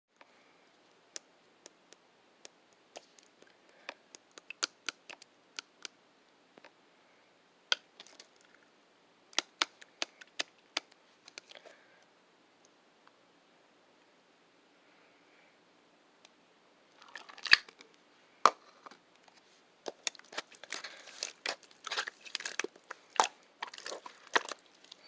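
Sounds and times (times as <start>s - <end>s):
faint steady hiss: 0.2s - 25.0s
sharp clicks and taps: 4.1s - 6.0s.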